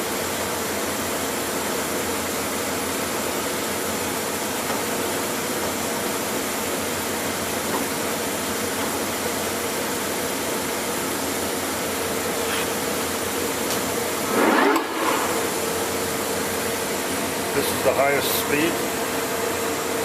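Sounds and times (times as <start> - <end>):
lathe whining: 14.0 - 20.0.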